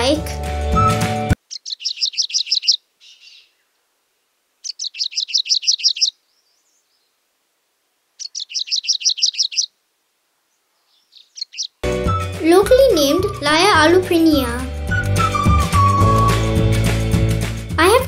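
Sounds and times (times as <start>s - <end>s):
bird calling sharp high notes: 0.6s - 3.6s, 11.2s - 16.7s.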